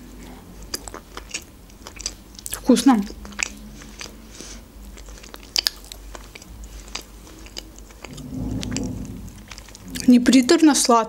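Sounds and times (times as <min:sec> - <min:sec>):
chewing soft pastry: 0:00.0 - 0:08.7
low hum: 0:07.7 - 0:10.4.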